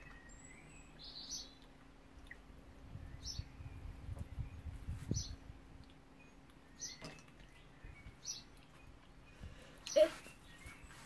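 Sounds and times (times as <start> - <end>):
small bird chirping: 6.1 - 11.0.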